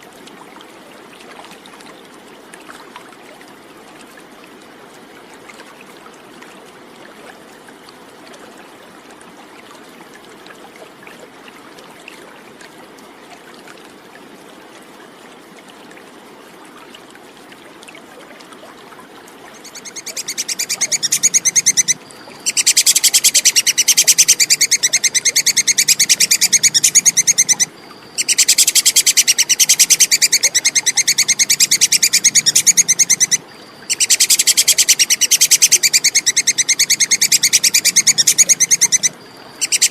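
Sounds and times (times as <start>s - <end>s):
faint steady hiss: 0.0s - 39.9s
squirrel chattering call: 19.6s - 39.9s.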